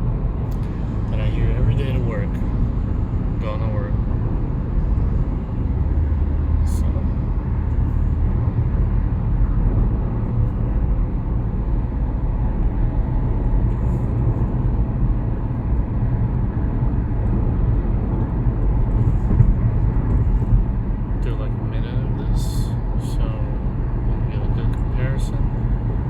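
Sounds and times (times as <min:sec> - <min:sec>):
tyres droning on road: 0:00.0 - 0:26.0.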